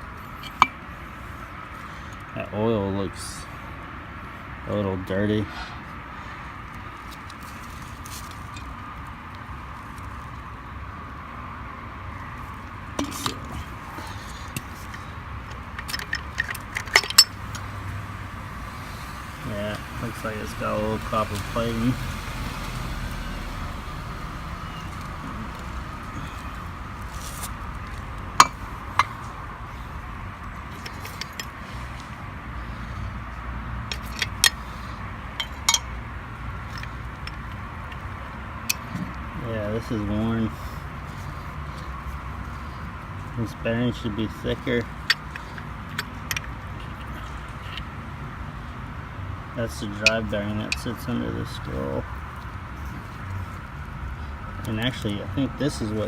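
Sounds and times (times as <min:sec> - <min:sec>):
low background hum: 0:12.0 - 0:48.8
metal parts clinking: 0:14.8 - 0:17.6, 0:30.7 - 0:31.6, 0:33.9 - 0:34.6
metallic clinks and taps: 0:35.4 - 0:35.9.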